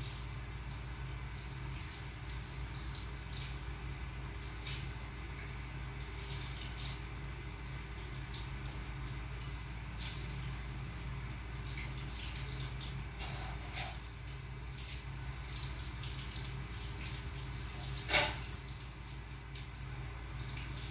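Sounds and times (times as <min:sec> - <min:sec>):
small bird chirping: 0:13.4 - 0:14.2, 0:18.3 - 0:18.8.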